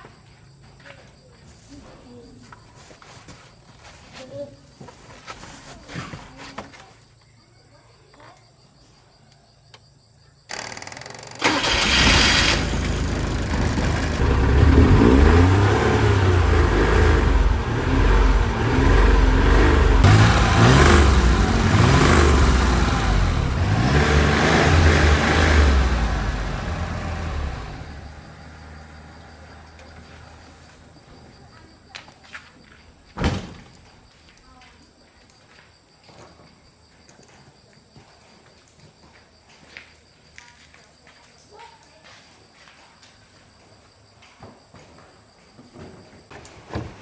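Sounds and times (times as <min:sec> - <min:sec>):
car engine cranking: 0:10.5 - 0:28.9
car engine revving: 0:11.3 - 0:29.7.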